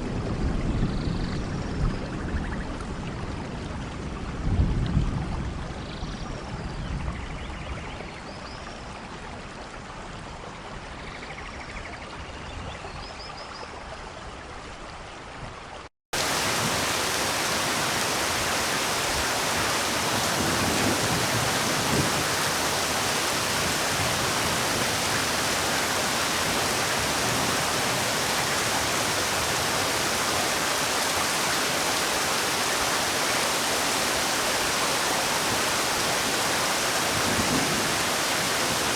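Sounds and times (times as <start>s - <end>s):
rain falling: 16.2s - 38.9s.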